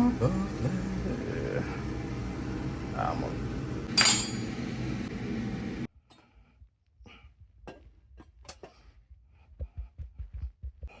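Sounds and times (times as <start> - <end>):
dishes and cutlery clinking: 4.0 - 4.5.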